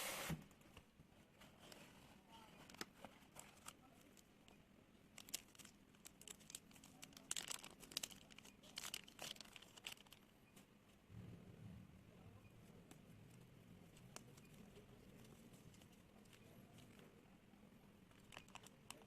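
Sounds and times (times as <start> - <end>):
crinkling and tearing packaging: 2.6 - 4.3, 5.1 - 10.3, 18.1 - 19.0.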